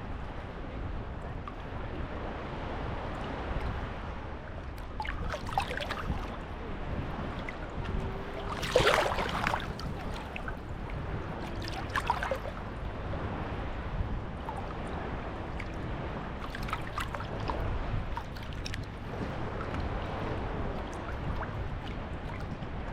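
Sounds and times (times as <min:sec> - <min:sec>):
wind rumble on microphone: 0:00.0 - 0:22.9
small waves splashing on shore: 0:04.8 - 0:22.9.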